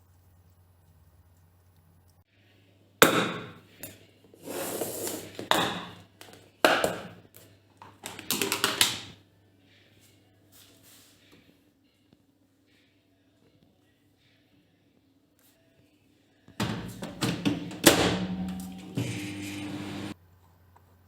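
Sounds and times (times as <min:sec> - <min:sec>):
objects knocking and clattering: 0:07.8 - 0:09.0.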